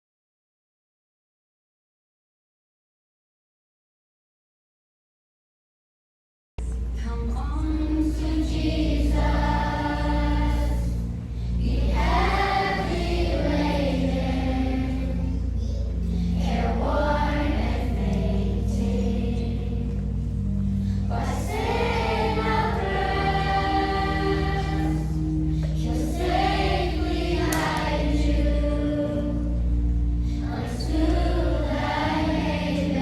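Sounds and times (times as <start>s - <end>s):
steady low hum: 6.6s - 33.0s
children's choir singing: 7.1s - 20.3s, 21.1s - 29.7s, 30.4s - 33.0s.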